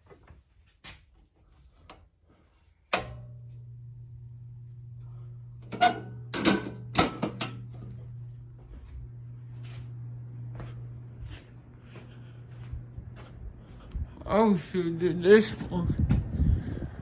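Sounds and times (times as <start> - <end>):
low electrical hum: 0.2 - 17.0
circuit breaker click: 2.9 - 3.7, 5.6 - 8.0.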